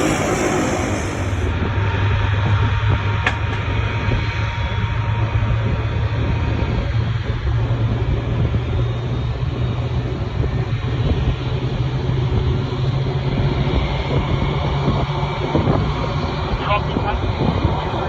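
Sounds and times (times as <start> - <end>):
jet engines running: 0.0 - 1.6.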